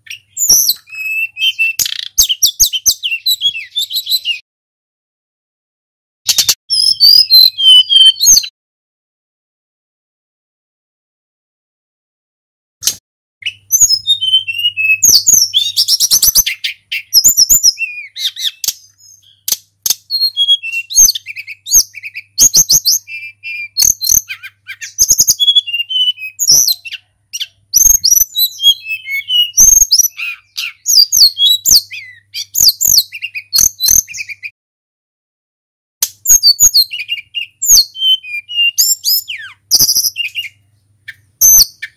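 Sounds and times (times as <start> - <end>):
flycatcher singing: 0.0 - 4.4, 6.5 - 8.5, 13.4 - 34.5, 36.2 - 41.9.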